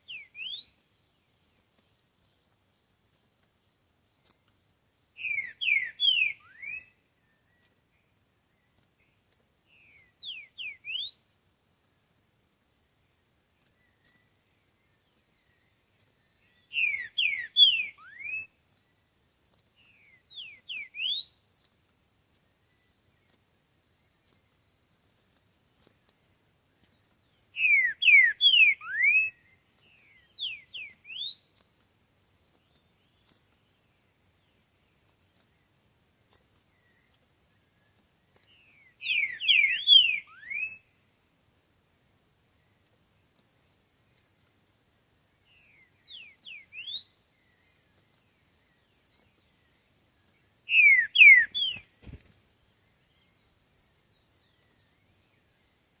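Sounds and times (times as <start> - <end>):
bird singing whistled phrases: 0.0 - 0.8, 5.2 - 7.0, 9.8 - 11.2, 16.6 - 18.7, 19.9 - 21.4, 27.6 - 29.5, 30.1 - 31.5, 38.8 - 40.9, 45.6 - 47.2, 50.6 - 52.2.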